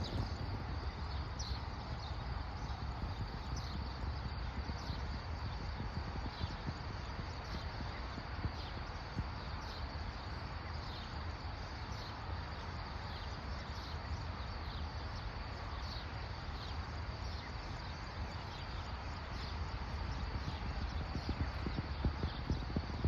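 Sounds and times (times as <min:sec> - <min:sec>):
low rumble and hiss: 0:00.0 - 0:23.0.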